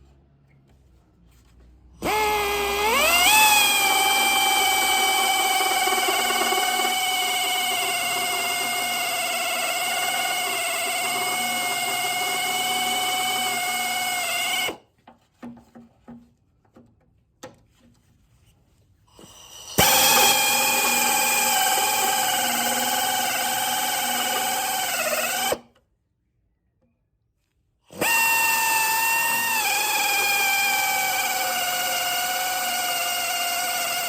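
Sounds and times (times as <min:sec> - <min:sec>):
power tool motor whining: 0:02.0 - 0:14.8, 0:19.7 - 0:25.6, 0:27.9 - 0:34.0.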